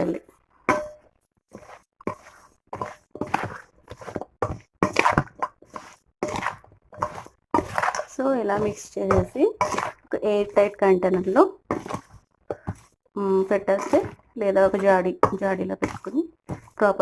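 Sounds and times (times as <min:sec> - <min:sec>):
spoon knocking and scraping bowl: 0:00.7 - 0:17.0.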